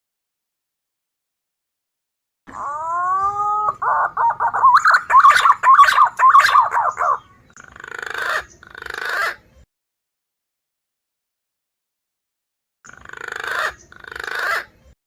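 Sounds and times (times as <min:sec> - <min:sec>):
green pigeon call: 0:02.5 - 0:09.5, 0:12.9 - 0:14.9.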